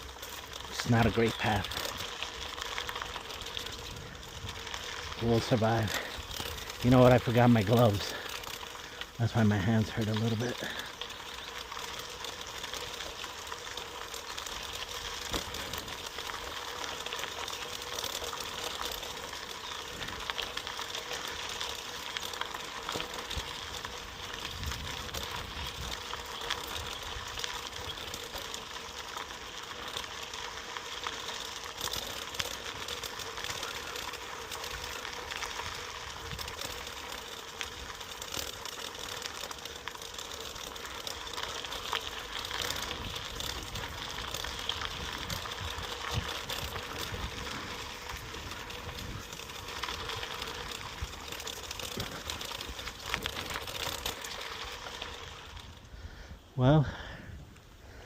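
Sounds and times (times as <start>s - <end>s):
bicycle rattling on rough trail: 0.0s - 58.0s.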